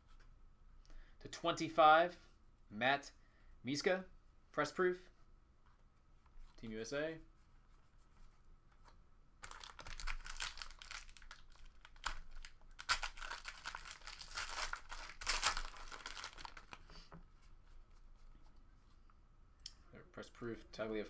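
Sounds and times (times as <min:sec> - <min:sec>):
wrapper tearing and crinkling: 0:09.4 - 0:16.8.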